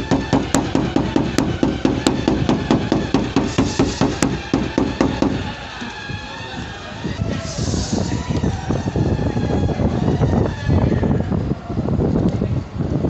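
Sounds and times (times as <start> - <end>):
hammer tapping sheet metal: 0.0 - 5.5.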